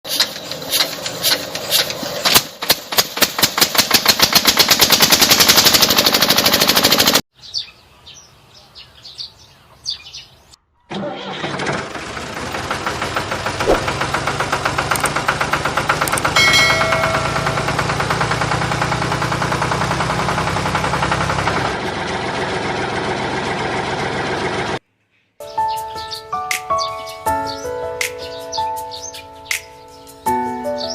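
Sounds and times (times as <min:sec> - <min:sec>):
miniature diesel engine running: 0:00.1 - 0:07.2, 0:10.9 - 0:24.8
scattered knocks: 0:16.4 - 0:18.4.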